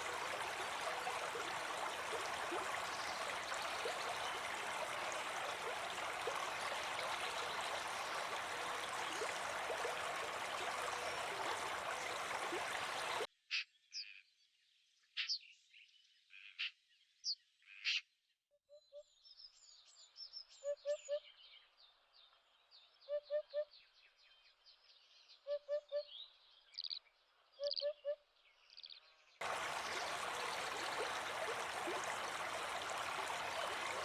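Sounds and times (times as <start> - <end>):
rushing water-like noise: 0.0 - 13.3, 29.4 - 34.0.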